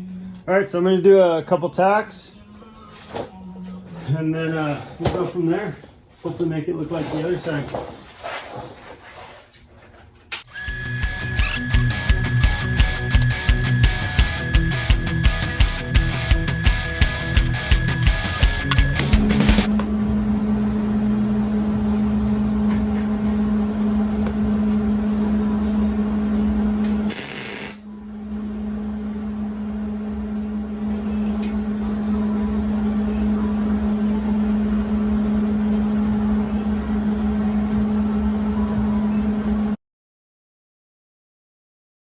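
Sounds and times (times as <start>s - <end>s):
steady machine hum: 10.5s - 39.8s.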